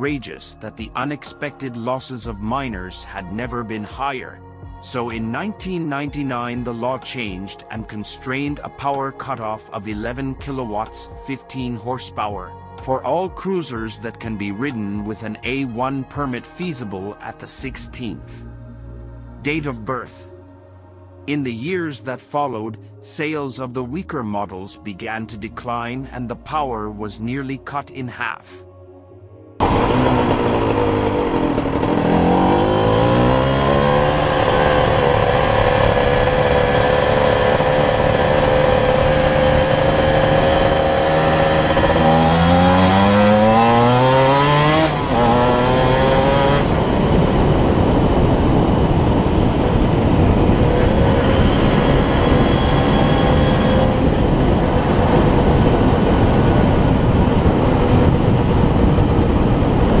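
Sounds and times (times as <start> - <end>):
motorcycle engine revving: 29.6 - 60.0.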